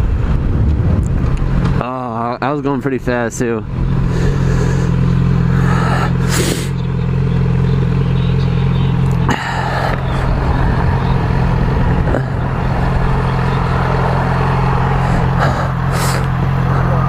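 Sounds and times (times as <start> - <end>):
motorcycle engine idling: 3.5 - 17.0.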